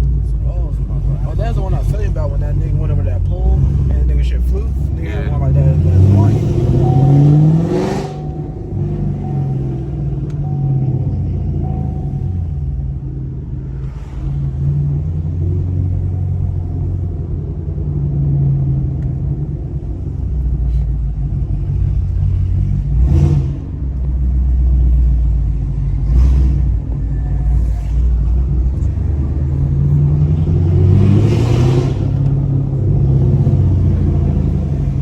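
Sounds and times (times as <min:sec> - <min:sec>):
car engine rumbling: 0:00.0 - 0:35.0
rushing noise: 0:06.1 - 0:15.6.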